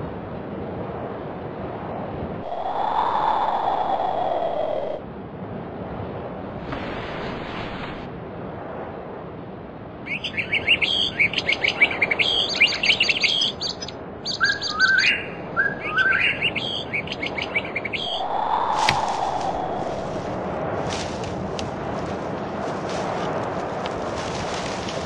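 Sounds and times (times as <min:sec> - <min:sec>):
birds chirping in trills: 0:10.1 - 0:20.2
upward-sliding bird calls: 0:10.1 - 0:25.0.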